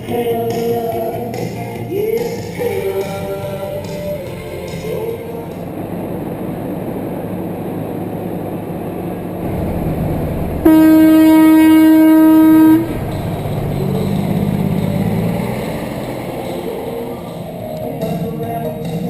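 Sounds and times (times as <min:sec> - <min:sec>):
low engine rumble: 0:00.0 - 0:19.0
truck air horn blast: 0:10.6 - 0:15.4.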